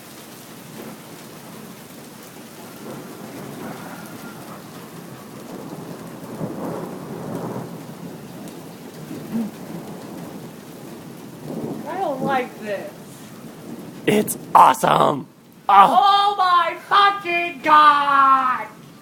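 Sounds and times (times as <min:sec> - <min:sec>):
steady rain falling: 0:00.0 - 0:19.0
thunder rumbling: 0:02.6 - 0:15.7.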